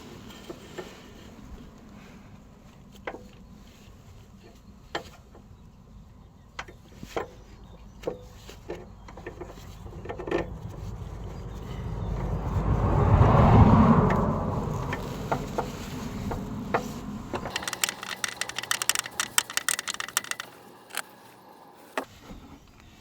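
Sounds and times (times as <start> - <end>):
vehicle passing by: 9.6 - 17.8
light clicks and knocks: 16.7 - 21.2.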